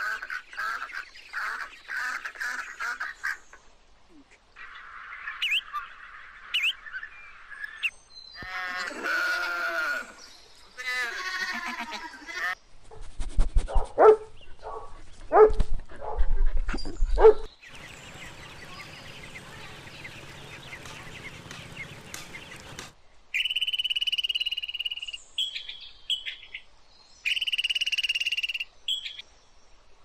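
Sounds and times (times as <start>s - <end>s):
dog barking and yipping: 13.7s - 16.2s, 17.2s - 17.5s.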